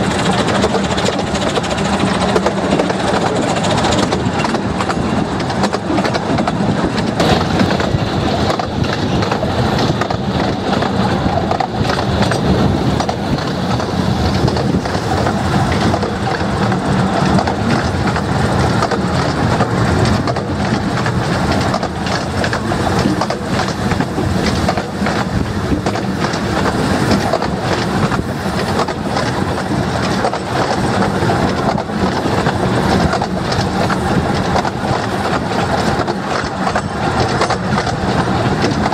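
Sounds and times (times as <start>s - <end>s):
train wheels rattling on rails: 0.0s - 38.9s.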